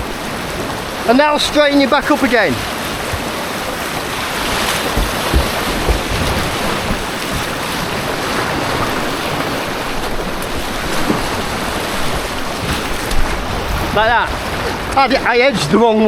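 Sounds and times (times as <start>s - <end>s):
rushing white water: 0.0s - 16.0s
dull knocks: 3.0s - 9.7s.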